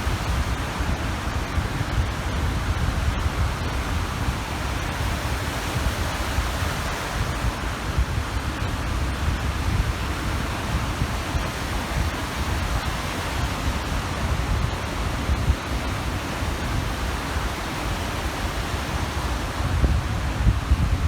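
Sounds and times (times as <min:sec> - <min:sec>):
waves washing onto shore: 0:00.0 - 0:21.0
wind rumbling on microphone: 0:00.0 - 0:21.0.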